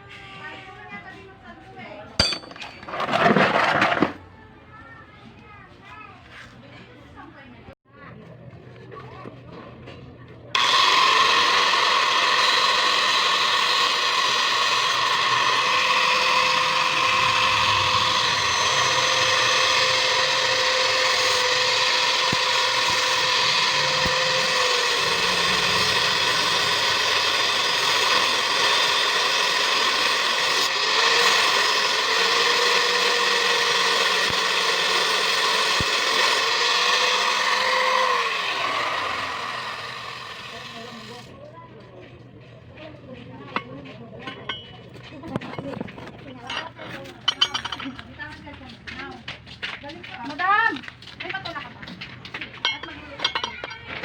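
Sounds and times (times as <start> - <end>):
power tool whining: 10.6 - 41.3.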